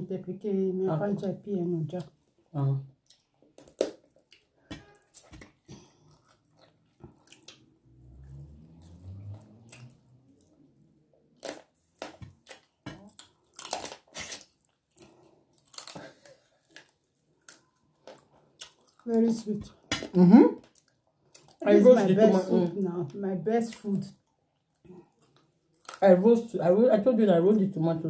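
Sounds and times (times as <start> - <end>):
chewing and lip smacking: 3.0 - 21.6, 24.0 - 26.0
sharp crunches and clicks: 11.4 - 21.6, 24.7 - 26.1.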